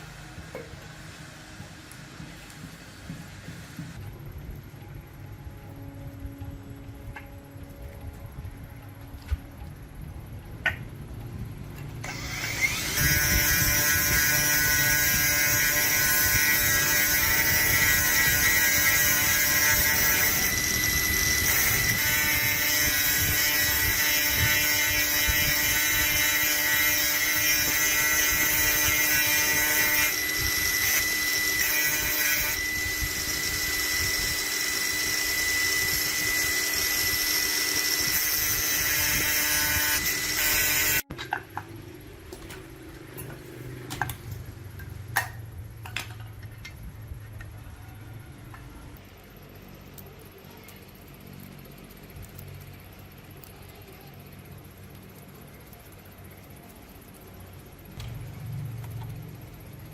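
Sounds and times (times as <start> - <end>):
electric power tool whining: 12.0 - 41.1.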